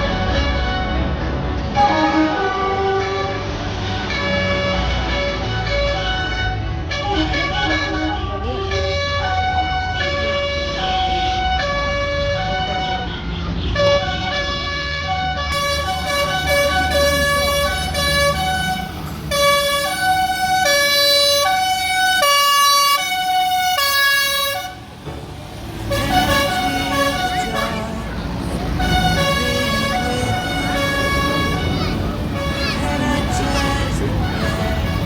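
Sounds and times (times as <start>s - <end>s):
tractor engines running: 15.6s - 35.0s.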